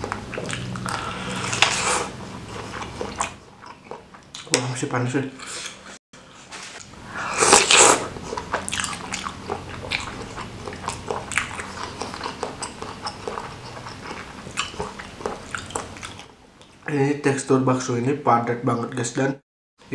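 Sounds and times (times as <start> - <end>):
chewing with wet mouth clicks: 0.0 - 1.8, 2.4 - 4.6, 7.6 - 16.7.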